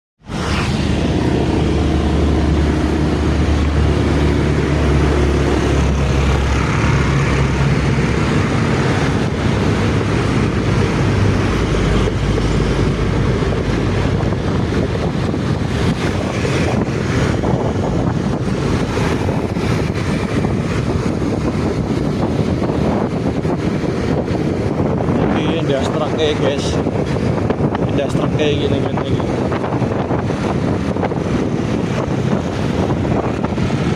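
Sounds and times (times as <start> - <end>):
road and wind noise: 0.2 - 33.9
vehicle engine humming: 0.2 - 33.9.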